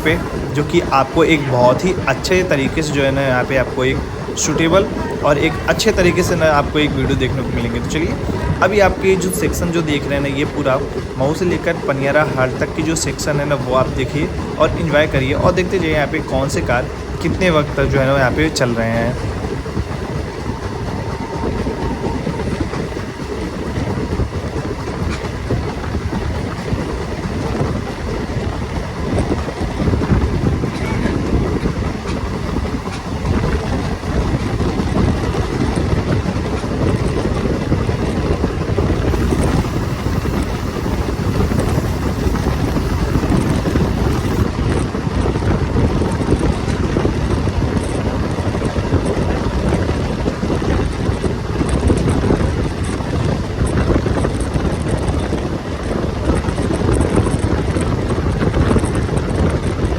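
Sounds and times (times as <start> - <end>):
train wheels rumbling on rails: 0.0 - 59.9
wind noise on microphone: 0.0 - 59.9.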